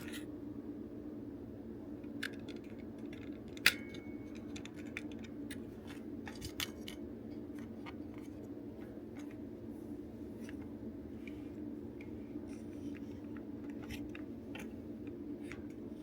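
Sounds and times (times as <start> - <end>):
steady low hum: 0.0 - 16.0
plastic parts clicking and tapping: 2.0 - 8.5, 12.0 - 15.8
sharp ringing click: 3.6 - 4.5.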